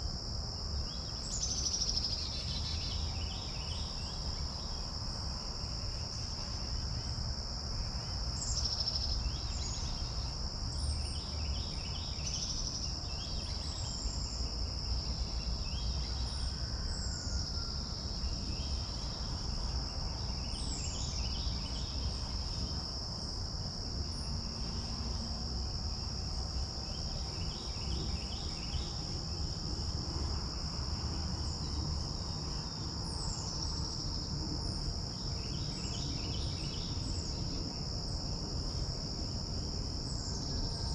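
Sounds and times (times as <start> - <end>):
insects trilling: 0.0 - 40.9
wind rumble on microphone: 17.6 - 40.9.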